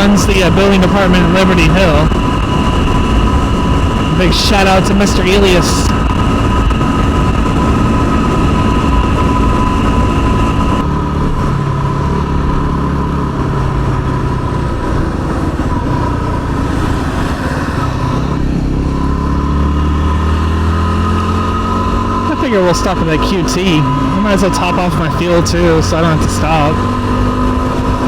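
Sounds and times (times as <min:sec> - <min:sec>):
wind noise: 0:00.0 - 0:12.2
motorcycle engine running: 0:00.0 - 0:28.0.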